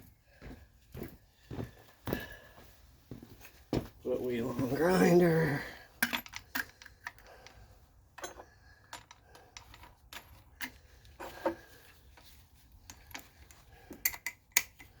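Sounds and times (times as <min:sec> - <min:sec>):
small metallic clicks and clinks: 0:06.0 - 0:07.6, 0:08.2 - 0:10.9, 0:12.8 - 0:15.0.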